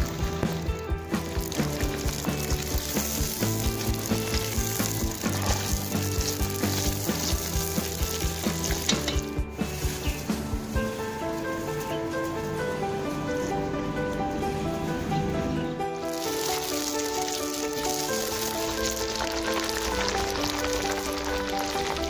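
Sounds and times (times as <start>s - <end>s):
hot oil sizzling: 0.0s - 10.8s, 16.0s - 22.0s
music with steady beat: 0.0s - 11.3s.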